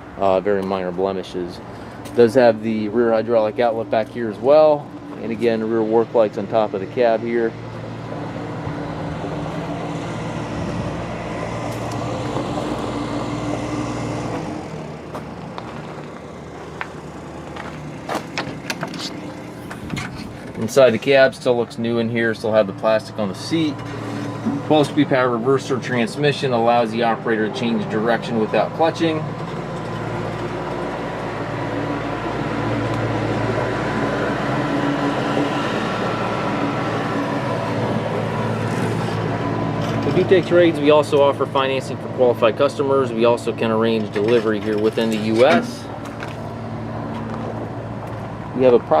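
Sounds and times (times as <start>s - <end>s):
diesel tractor engine idling: 0.0s - 49.0s
sharp clicks and knocks: 18.1s - 20.8s.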